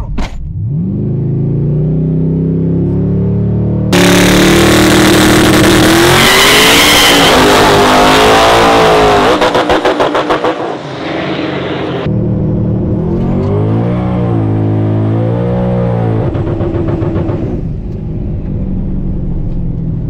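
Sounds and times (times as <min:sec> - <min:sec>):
truck engine revving high: 0:00.6 - 0:17.7.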